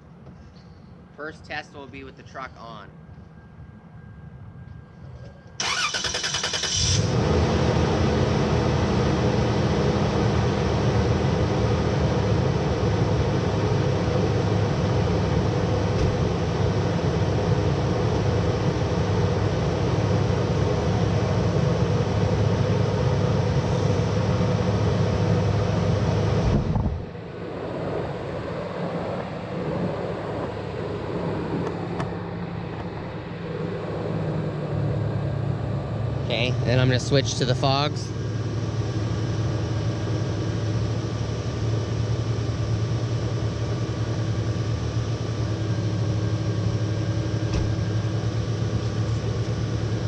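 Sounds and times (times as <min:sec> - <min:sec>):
engine idling: 0:05.6 - 0:27.2, 0:33.6 - 0:50.0.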